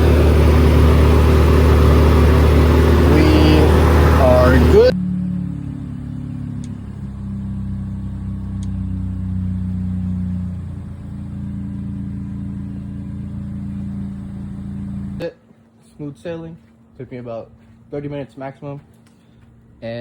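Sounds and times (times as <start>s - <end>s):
car engine idling: 0.0s - 15.2s.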